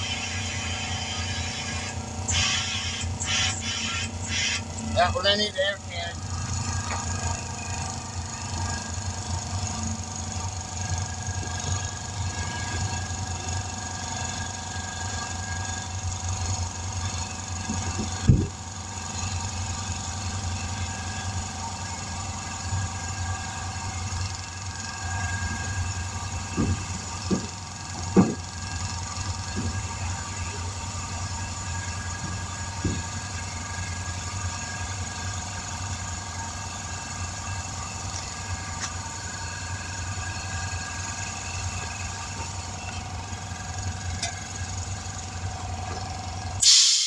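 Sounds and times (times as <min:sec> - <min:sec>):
small engine humming: 0:00.0 - 0:46.6
short knocks: 0:26.4 - 0:28.5, 0:32.2 - 0:33.4.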